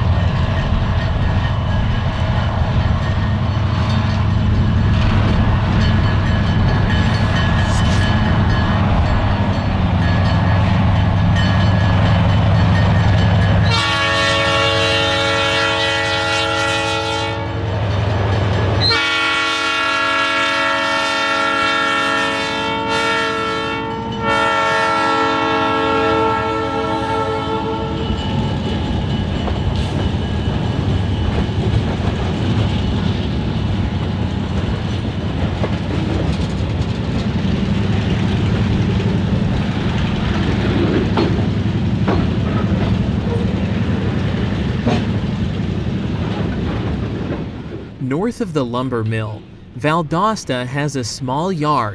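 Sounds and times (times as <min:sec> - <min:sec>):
locomotive engine rumble: 0:00.0 - 0:14.1
locomotive air horn blasts: 0:13.6 - 0:17.6, 0:18.8 - 0:28.0.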